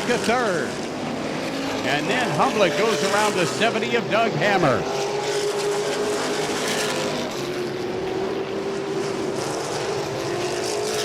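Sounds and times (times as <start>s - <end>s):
race car engines droning: 0.0s - 5.4s.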